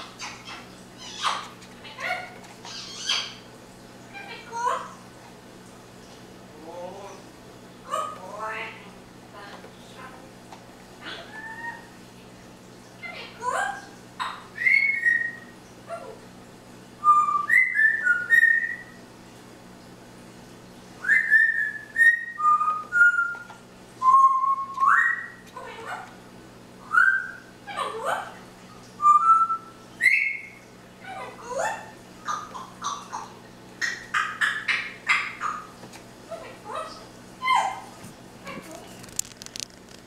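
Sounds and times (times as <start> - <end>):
parrot whistling and squawking: 0.0 - 3.4, 11.0 - 11.9, 13.0 - 16.2, 17.0 - 19.0, 21.0 - 26.0, 26.8 - 28.4, 29.0 - 37.8
faint steady hum: 0.0 - 40.0.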